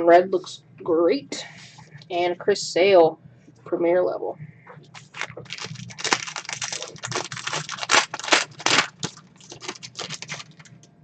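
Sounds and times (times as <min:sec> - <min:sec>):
cards and wrappers rustling: 0:04.9 - 0:10.8.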